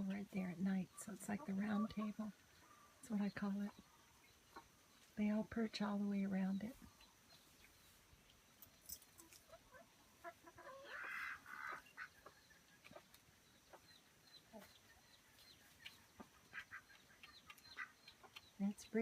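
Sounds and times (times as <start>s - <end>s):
chickens clucking: 0.0s - 5.2s, 5.8s - 19.0s
hen calling: 9.2s - 13.0s, 15.9s - 19.0s.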